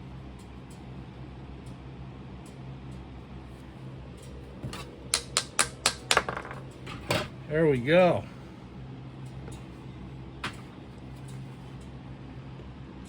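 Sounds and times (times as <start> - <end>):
low steady hum: 0.0 - 13.0
sharp rapping taps: 5.2 - 6.2.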